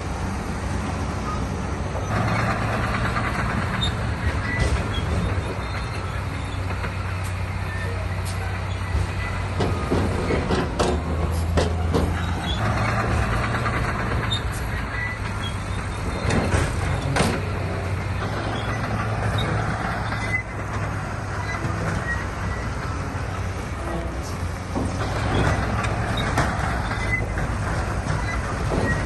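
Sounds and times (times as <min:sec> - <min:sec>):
diesel machinery running: 0:00.0 - 0:29.0
rock and metal clanks: 0:08.3 - 0:29.0.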